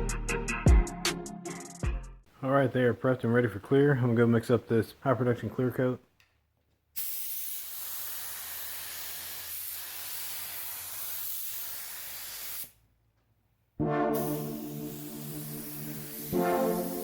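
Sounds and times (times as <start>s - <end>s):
spray gun hissing: 7.0s - 12.8s, 14.2s - 17.0s.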